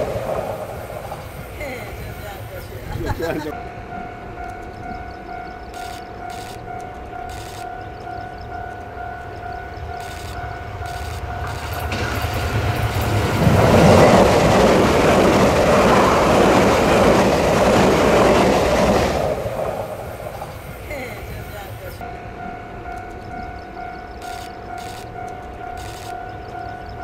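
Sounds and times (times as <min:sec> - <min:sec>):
train passing rumble: 0:00.0 - 0:27.0
crossing signal warning tone: 0:03.5 - 0:13.2, 0:20.1 - 0:27.0.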